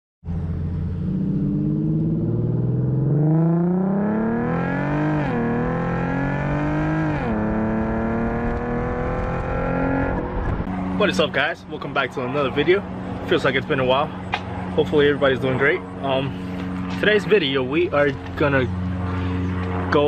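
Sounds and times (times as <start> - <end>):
loud car exhaust accelerating: 0.2 - 11.9.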